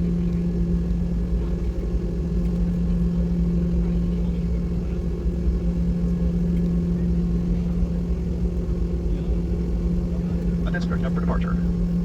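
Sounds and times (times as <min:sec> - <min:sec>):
airplane cabin rumble: 0:00.0 - 0:12.0
engine hum: 0:10.2 - 0:12.0.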